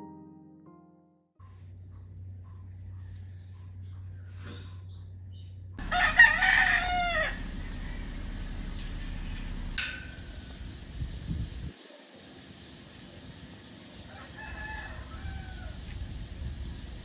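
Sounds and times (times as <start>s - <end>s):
rooster crowing: 5.8s - 10.7s, 14.0s - 16.0s.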